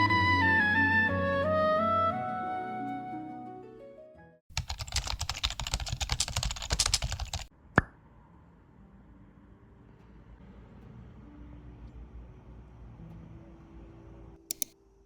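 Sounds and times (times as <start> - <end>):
soft music: 0.0 - 4.4, 8.4 - 15.0
rapid clicks and taps: 4.5 - 7.5, 14.5 - 14.8.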